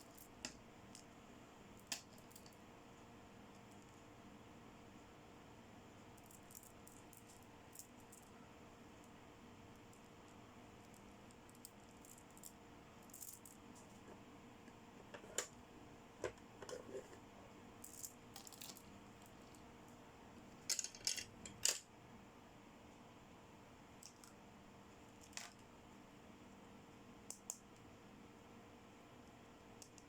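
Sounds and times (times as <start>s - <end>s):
plastic toy parts clinking: 17.9s - 18.9s, 20.6s - 21.8s.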